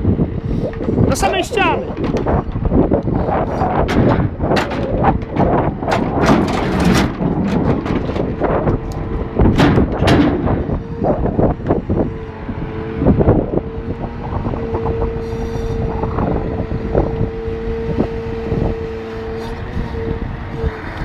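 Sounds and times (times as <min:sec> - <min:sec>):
diesel truck engine running: 0:00.0 - 0:21.0
steady whine: 0:00.0 - 0:21.0
logs knocking and banging: 0:00.7 - 0:11.8.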